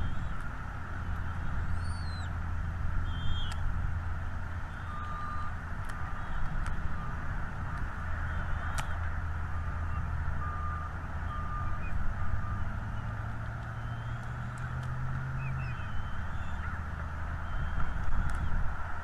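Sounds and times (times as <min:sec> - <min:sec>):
low engine rumble: 0:00.0 - 0:19.0
faint bird chirps: 0:01.6 - 0:02.3, 0:03.0 - 0:03.6
reversing alarm beeps: 0:04.8 - 0:05.5, 0:10.4 - 0:12.6.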